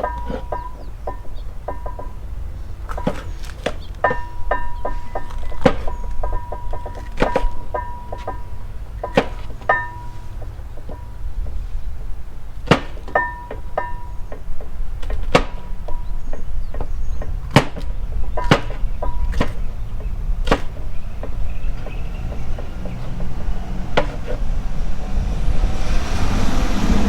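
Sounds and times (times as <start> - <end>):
knife chopping vegetables: 20.4 - 24.5.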